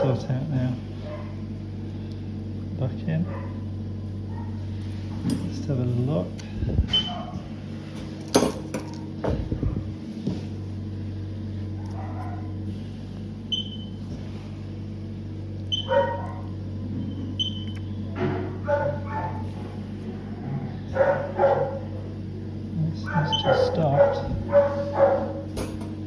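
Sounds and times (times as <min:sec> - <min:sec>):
steady low hum: 0:00.0 - 0:26.0
dogs barking and yelping: 0:01.0 - 0:01.5, 0:03.3 - 0:03.7, 0:04.3 - 0:04.7, 0:06.9 - 0:07.5, 0:11.7 - 0:12.6, 0:15.7 - 0:16.6, 0:18.2 - 0:19.7, 0:20.3 - 0:22.0, 0:23.0 - 0:25.6.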